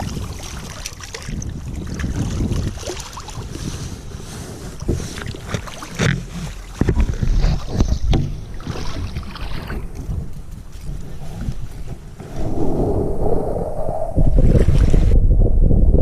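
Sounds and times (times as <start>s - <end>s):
sharp knocks and splashes: 0.0s - 3.8s, 4.8s - 12.3s
wind rumbling on microphone: 0.0s - 16.0s.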